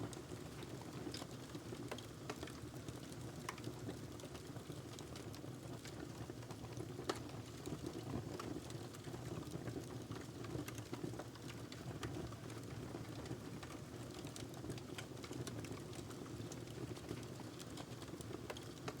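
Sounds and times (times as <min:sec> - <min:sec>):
burning log crackling and popping: 0:00.0 - 0:19.0.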